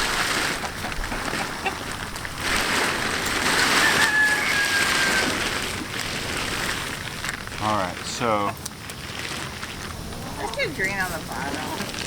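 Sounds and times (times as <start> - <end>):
plastic tarp rustling: 0.0 - 12.0
chicken call: 3.6 - 5.5.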